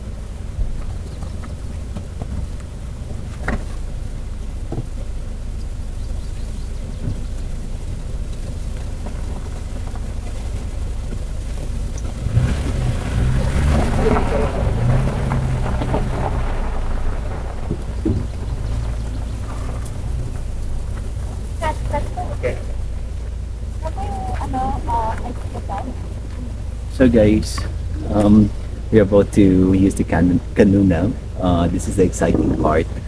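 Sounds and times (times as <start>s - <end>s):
wind buffeting microphone: 0.0s - 33.0s
rustling and knocking: 7.0s - 27.0s.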